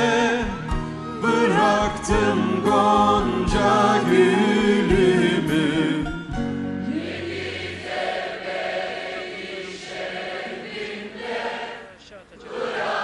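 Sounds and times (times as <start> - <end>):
choir holding long notes: 0.0 - 13.0.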